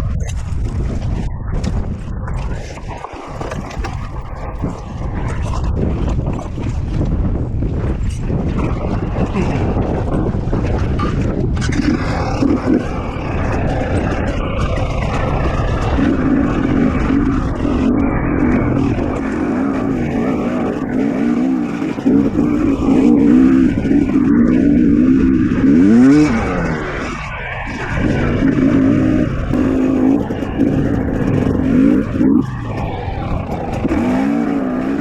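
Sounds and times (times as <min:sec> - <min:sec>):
dirt bike engine revving: 0:11.6 - 0:35.0.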